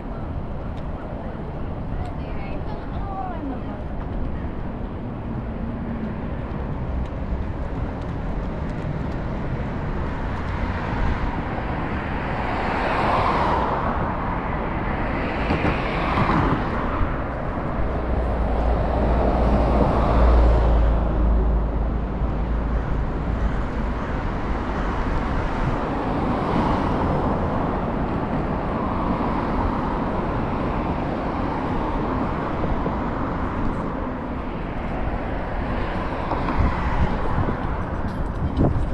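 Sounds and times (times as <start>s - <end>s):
street traffic: 0.0s - 38.9s
vehicles passing: 0.0s - 38.9s.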